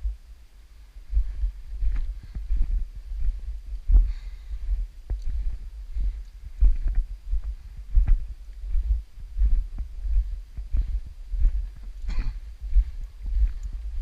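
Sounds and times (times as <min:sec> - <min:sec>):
wind buffeting microphone: 0:01.0 - 0:14.0.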